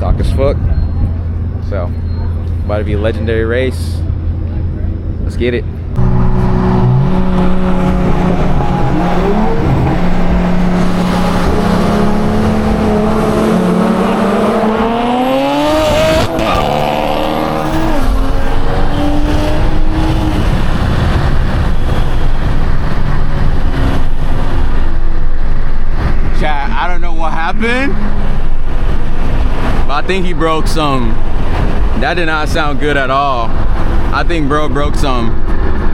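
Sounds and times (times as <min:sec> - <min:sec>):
road and wind roar: 0:00.0 - 0:35.9
car engine accelerating hard: 0:05.9 - 0:26.3.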